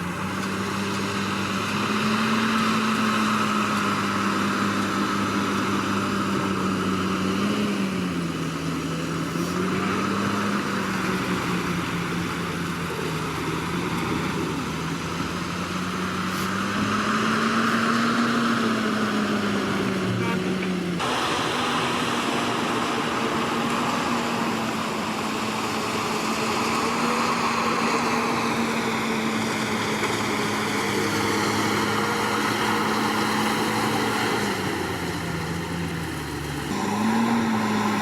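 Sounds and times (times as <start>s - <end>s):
heavy diesel engine running: 0.0s - 38.0s.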